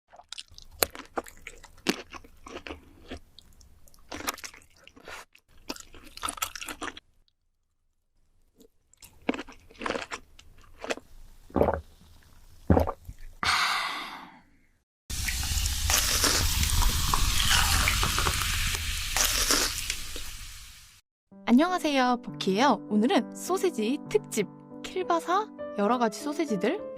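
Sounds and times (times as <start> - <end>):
person chewing crisp food: 0.1 - 7.4, 8.2 - 13.4, 15.8 - 18.1, 19.2 - 20.3.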